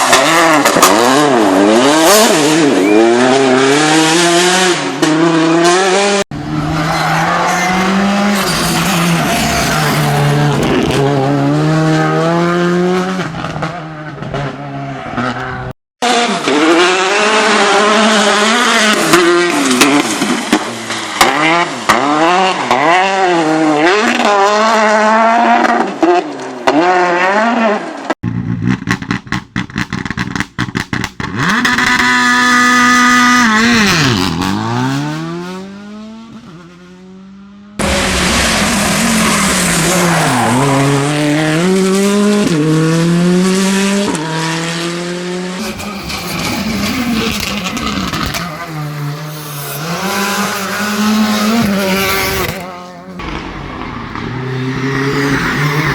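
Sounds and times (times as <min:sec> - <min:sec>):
rally car engines revving: 0:00.0 - 0:55.9
tyre squeal: 0:06.4 - 0:11.0, 0:45.6 - 0:48.9.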